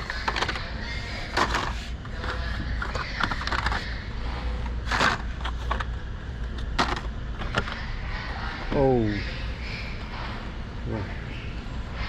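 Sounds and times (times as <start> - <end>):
plastic clicks and scrapes: 0.0 - 4.0, 4.6 - 7.8
steady low hum: 0.0 - 12.0.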